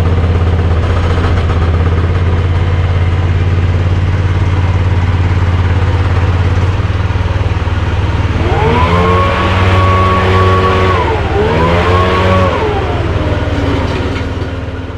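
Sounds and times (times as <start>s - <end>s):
excavator engine hum: 0.0s - 14.9s
machine whine: 8.2s - 14.5s.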